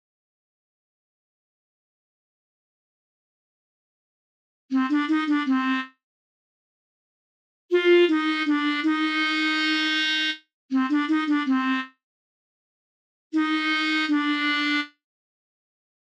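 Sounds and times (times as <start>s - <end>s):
reedy wind instrument melody: 4.7s - 5.9s, 7.7s - 11.9s, 13.4s - 15.0s.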